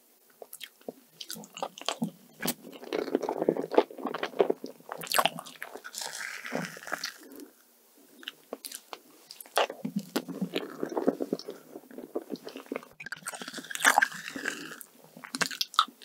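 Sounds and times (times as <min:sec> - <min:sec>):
wet chewing and lip smacking: 0:00.4 - 0:07.5, 0:08.2 - 0:16.0.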